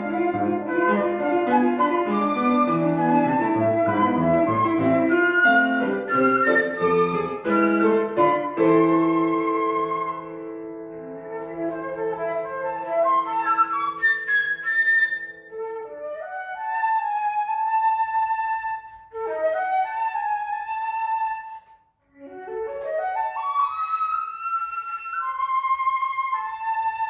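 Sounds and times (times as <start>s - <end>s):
piano chords: 0.0s - 16.2s
classical flute playing: 0.0s - 27.0s.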